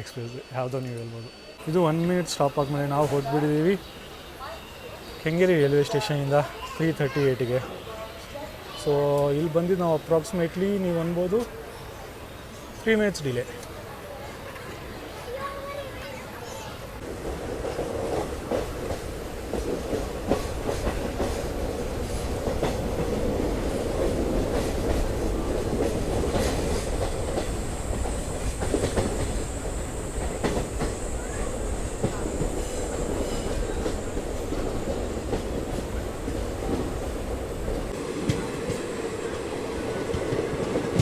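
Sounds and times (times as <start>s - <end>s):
train rumble on rails: 1.2s - 12.9s, 13.5s - 41.0s
wheels clacking over rail joints: 17.1s - 41.0s.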